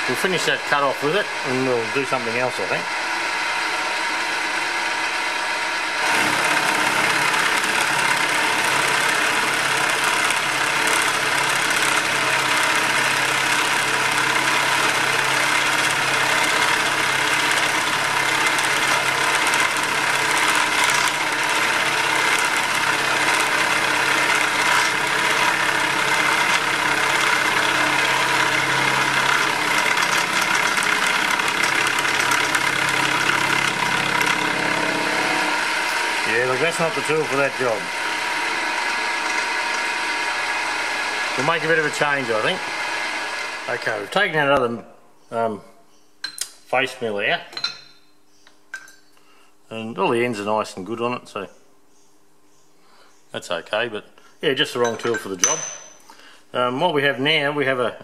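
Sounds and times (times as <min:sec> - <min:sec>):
milling machine cutting steel: 0:00.0 - 0:44.3, 0:54.8 - 0:56.0
machine hum: 0:00.0 - 0:44.6.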